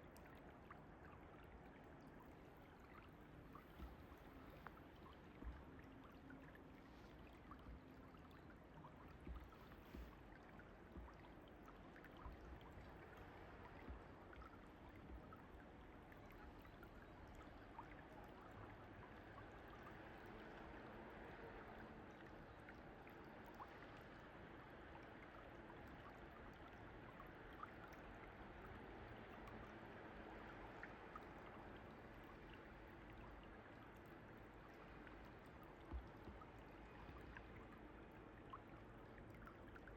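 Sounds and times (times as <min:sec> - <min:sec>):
flowing mountain stream: 0:00.0 - 0:39.9
soft low thumps: 0:09.1 - 0:11.3.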